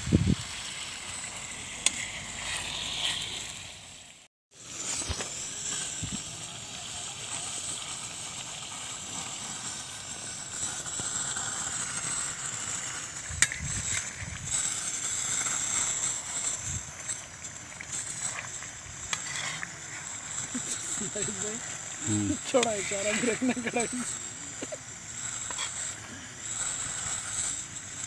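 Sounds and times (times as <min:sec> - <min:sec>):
chicken sizzling in oil: 0:00.0 - 0:27.2
metal ladle stirring: 0:13.2 - 0:27.0.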